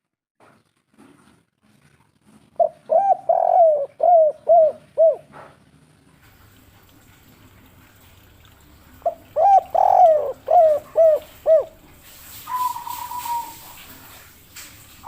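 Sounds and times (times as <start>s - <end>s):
dove cooing: 2.6s - 5.6s, 9.0s - 14.2s.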